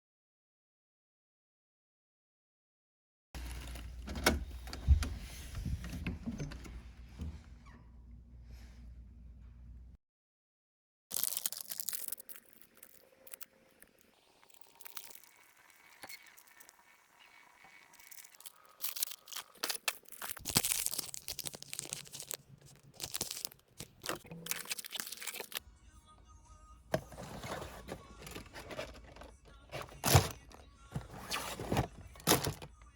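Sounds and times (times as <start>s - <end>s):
plastic wrapper tearing: 11.1s - 16.8s, 17.8s - 25.6s
plastic wrapper crinkling: 11.1s - 16.9s, 17.8s - 25.6s.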